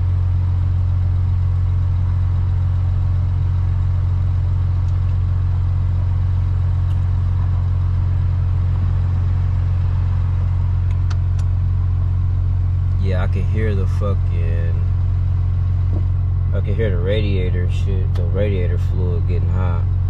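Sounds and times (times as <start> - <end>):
car cabin drone: 0.0 - 20.0.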